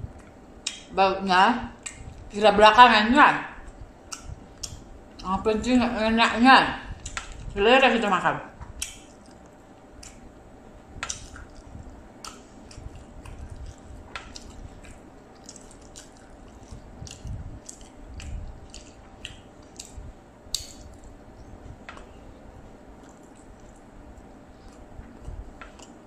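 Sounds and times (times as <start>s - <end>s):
person chewing: 3.6s - 5.3s, 6.9s - 7.6s, 8.7s - 10.4s, 11.0s - 22.2s, 22.8s - 26.0s
soft low thumps: 16.4s - 20.2s.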